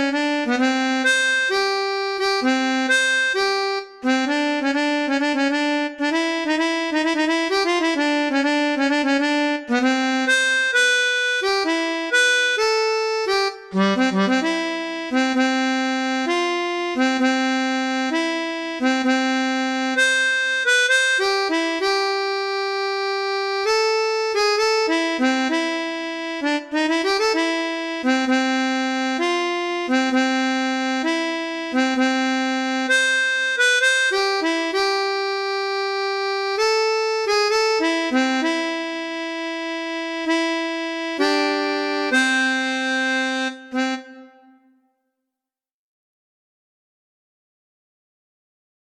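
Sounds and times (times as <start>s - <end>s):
harmonica melody: 0.0s - 44.8s.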